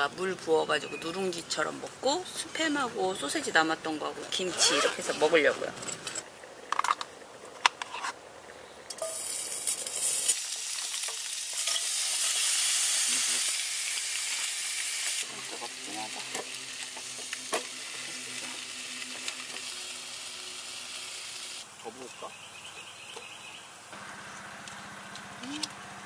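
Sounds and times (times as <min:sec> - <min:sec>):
meat sizzling in a pan: 0:09.0 - 0:21.7.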